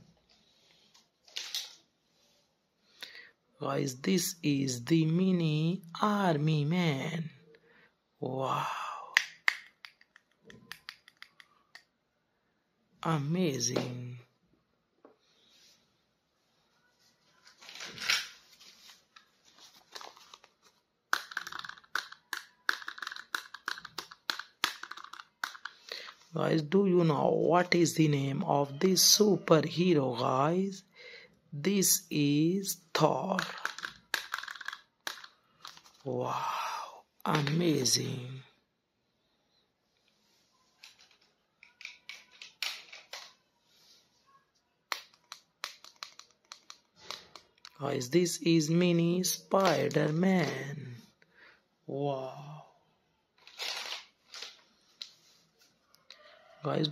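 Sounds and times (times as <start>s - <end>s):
plastic toys clicking and rustling: 9.2s - 11.9s, 19.2s - 26.2s, 33.1s - 36.1s, 40.8s - 43.4s, 44.9s - 47.8s, 49.5s - 50.5s, 53.4s - 55.1s
plastic packaging rustling: 17.4s - 21.8s, 53.4s - 55.3s.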